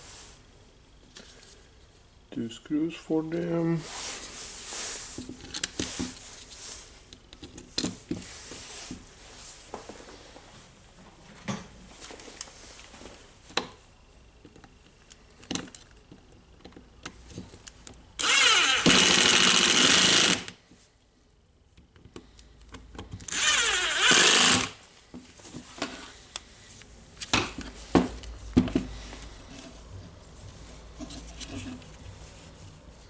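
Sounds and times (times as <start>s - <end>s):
electric screwdriver driving screws: 18.2s - 20.6s, 23.3s - 24.8s.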